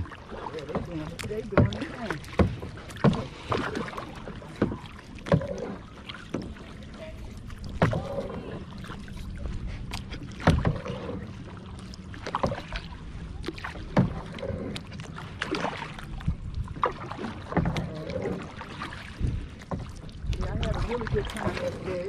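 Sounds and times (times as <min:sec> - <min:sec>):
paddle strokes splashing water: 0:00.0 - 0:22.0
wind on microphone: 0:16.1 - 0:17.0, 0:17.8 - 0:22.0.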